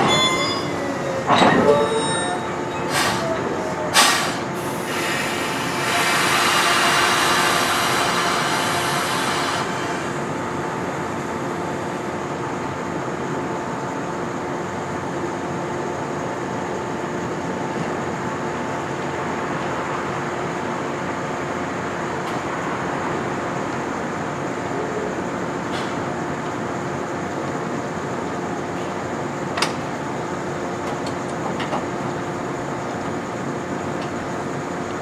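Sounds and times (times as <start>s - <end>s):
train equipment hum: 0.0s - 35.0s
air hissing: 2.8s - 10.2s.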